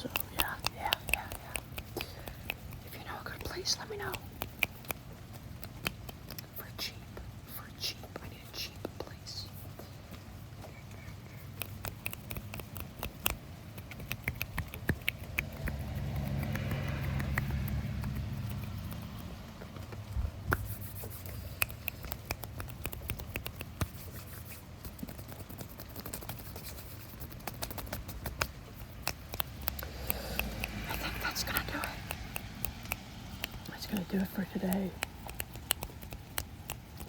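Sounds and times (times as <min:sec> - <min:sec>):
fingers scratching and tapping: 0:00.0 - 0:37.0.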